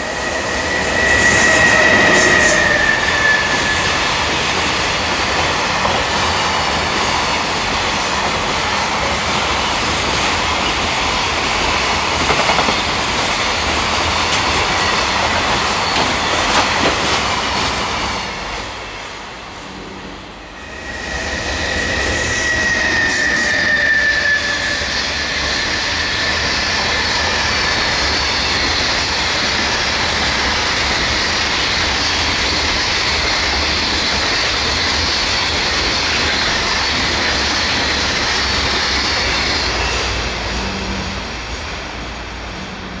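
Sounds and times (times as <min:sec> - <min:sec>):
high wheel squeal: 0:00.0 - 0:04.2, 0:20.4 - 0:28.6
freight train wheels clattering: 0:00.0 - 0:18.5.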